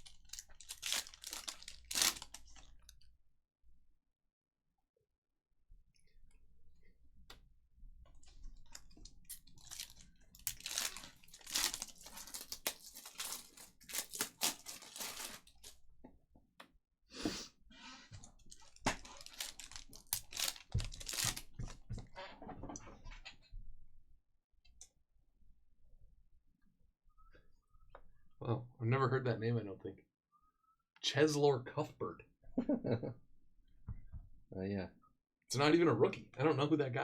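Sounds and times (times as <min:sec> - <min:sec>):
foil wrappers tearing and crinkling: 0:00.0 - 0:02.8, 0:08.7 - 0:15.8, 0:18.5 - 0:21.8.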